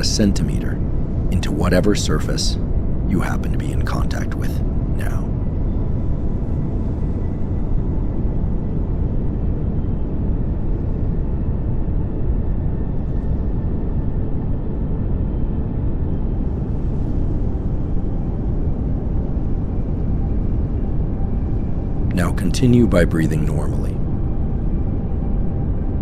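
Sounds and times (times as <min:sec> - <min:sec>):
pink noise hiss: 0:03.2 - 0:05.3, 0:22.1 - 0:23.9.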